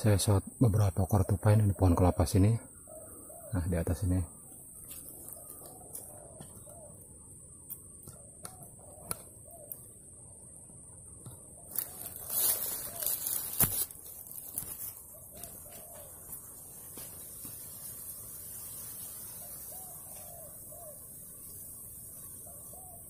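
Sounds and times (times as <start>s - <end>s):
dove cooing: 1.0s - 10.0s, 11.4s - 13.9s, 14.6s - 17.1s, 19.2s - 23.0s.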